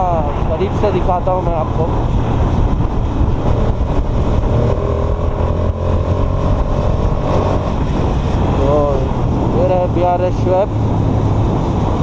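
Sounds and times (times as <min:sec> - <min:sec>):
wind rushing over microphone: 0:00.0 - 0:12.0
motorcycle engine running: 0:01.8 - 0:10.0.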